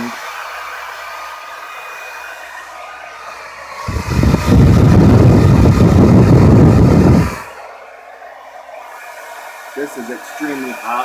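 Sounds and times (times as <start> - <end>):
hair dryer running: 0.0 - 11.0
air blast rumble on microphone: 3.7 - 7.6.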